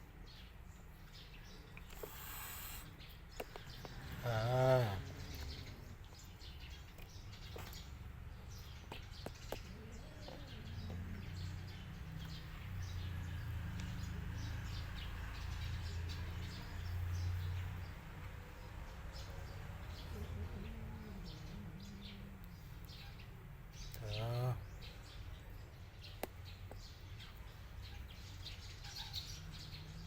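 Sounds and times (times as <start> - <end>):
cats chewing and crunching: 1.7 - 4.3, 5.0 - 11.2.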